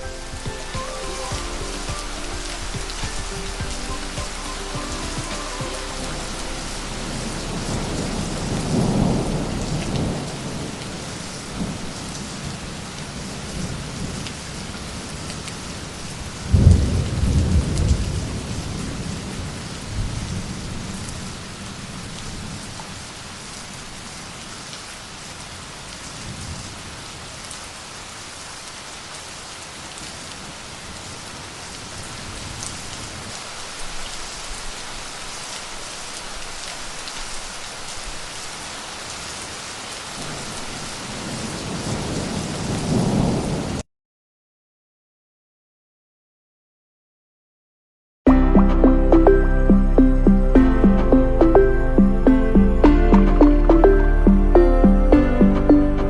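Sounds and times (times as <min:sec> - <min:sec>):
thunder rumbling: 0:00.0 - 0:21.4
steady rain: 0:00.0 - 0:43.9.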